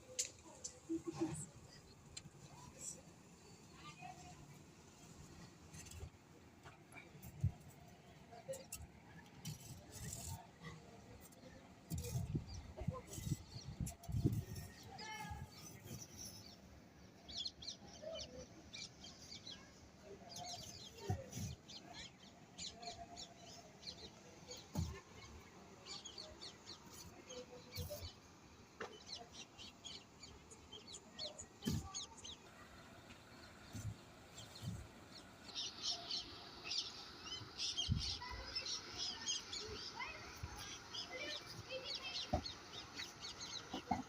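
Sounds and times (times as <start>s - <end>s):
birds chirping: 33.1s - 44.0s.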